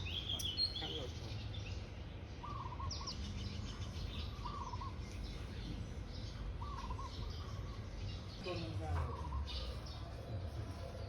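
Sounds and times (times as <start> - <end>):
faint high bird chirps: 0.0 - 10.2.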